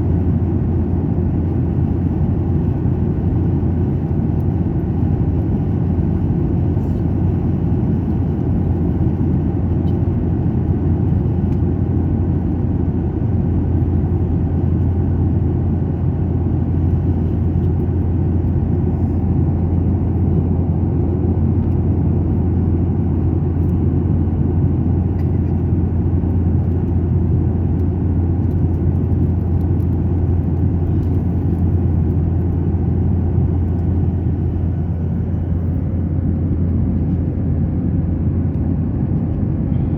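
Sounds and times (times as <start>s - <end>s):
airliner cabin engine drone: 0.0s - 39.9s
airflow noise: 30.4s - 39.9s.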